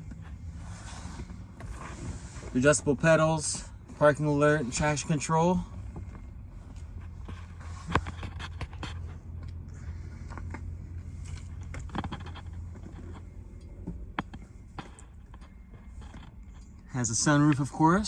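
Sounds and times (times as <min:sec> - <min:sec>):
steady low hum: 0:00.0 - 0:18.0
handling clicks and scrapes: 0:05.8 - 0:16.9.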